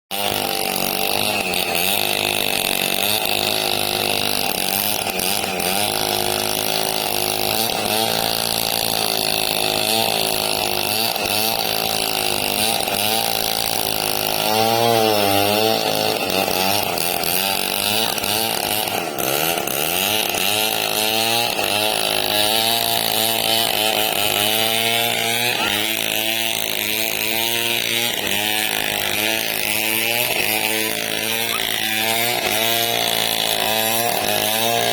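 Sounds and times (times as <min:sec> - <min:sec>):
chainsaw cutting through log: 0:00.1 - 0:34.9.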